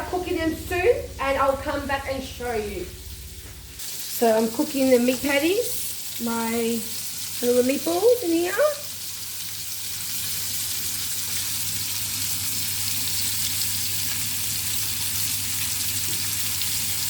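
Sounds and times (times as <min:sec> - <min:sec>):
low hum: 0:00.0 - 0:03.8
meatballs sizzling in oil: 0:00.2 - 0:17.0.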